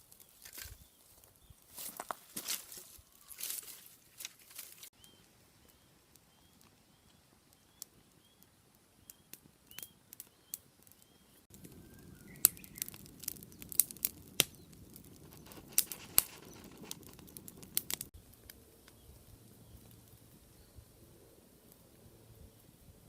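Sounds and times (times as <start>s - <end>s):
small bird chirping: 4.9s - 18.0s.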